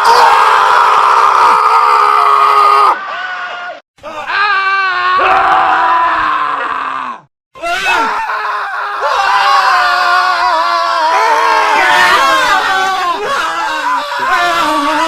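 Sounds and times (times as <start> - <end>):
men screaming: 0.0 - 15.0.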